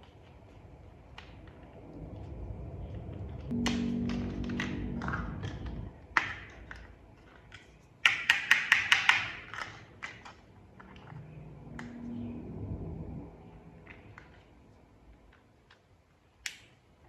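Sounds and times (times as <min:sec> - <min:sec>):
plastic toy parts clicking: 0:04.5 - 0:11.2.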